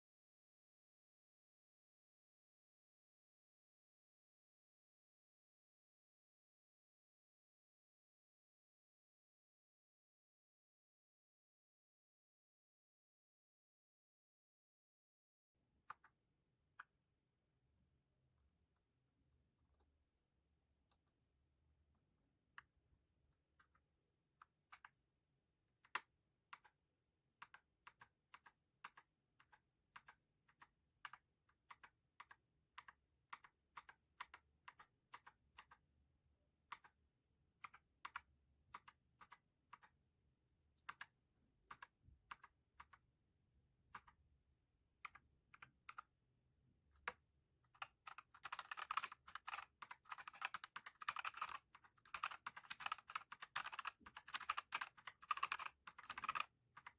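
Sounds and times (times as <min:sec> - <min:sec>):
mechanical keyboard typing: 0:25.9 - 0:26.8, 0:27.4 - 0:35.8, 0:36.7 - 0:37.0, 0:47.8 - 0:56.9.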